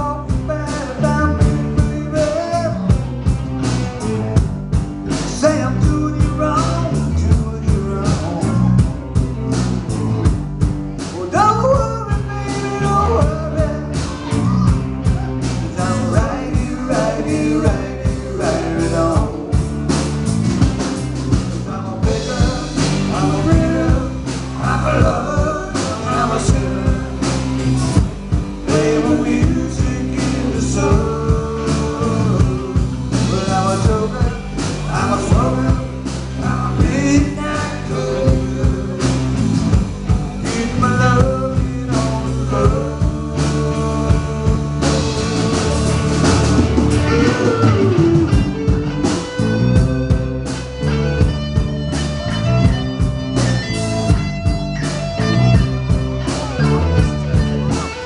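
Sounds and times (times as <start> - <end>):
person singing: 0.0 - 3.3, 11.0 - 20.0, 21.6 - 51.0
drum beat: 0.0 - 58.0
electric guitar: 0.0 - 58.0.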